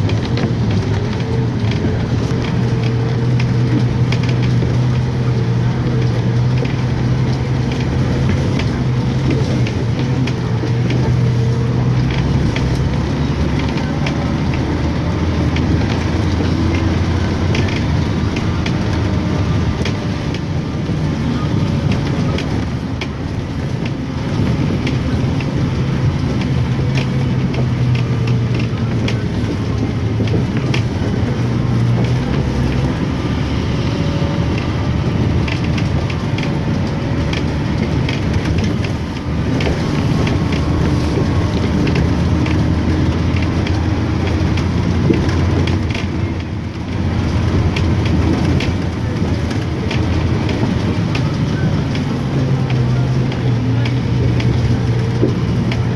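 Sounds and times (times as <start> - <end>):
car engine and road noise: 0.0 - 55.9.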